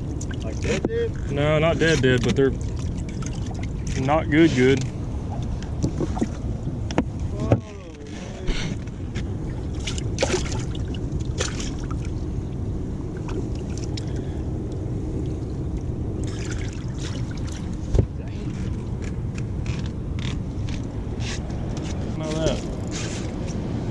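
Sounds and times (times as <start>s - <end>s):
boat motor rumbling: 0.0s - 23.9s.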